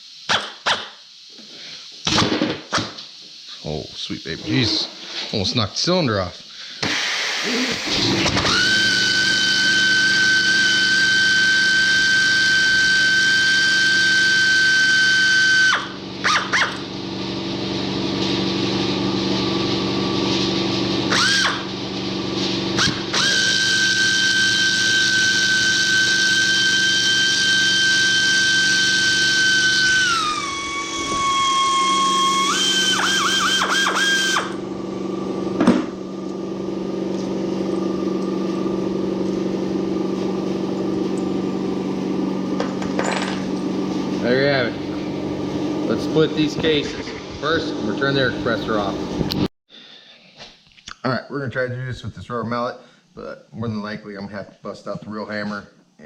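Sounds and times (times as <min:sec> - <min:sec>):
pneumatic air tool whining: 0:00.2 - 0:01.0, 0:06.8 - 0:17.0, 0:21.0 - 0:21.8, 0:22.7 - 0:34.8
air compressor running: 0:06.7 - 0:49.5.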